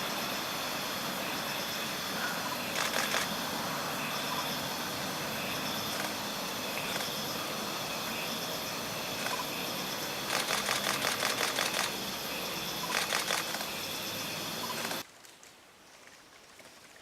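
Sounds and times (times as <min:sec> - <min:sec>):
steady outdoor hiss: 0:00.0 - 0:17.0
camera shutter clicks: 0:02.8 - 0:03.3, 0:10.3 - 0:11.9, 0:12.9 - 0:13.7.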